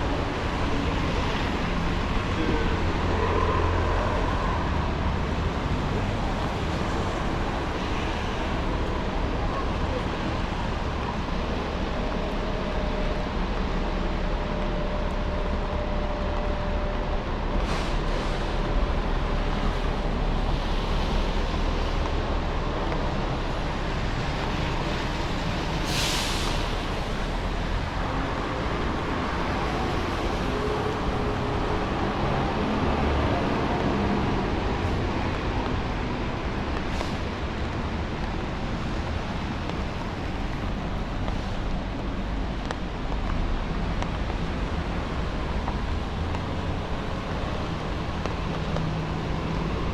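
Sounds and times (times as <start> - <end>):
traffic on wet street: 0.0 - 49.9
sharp hiss of air: 25.7 - 27.2.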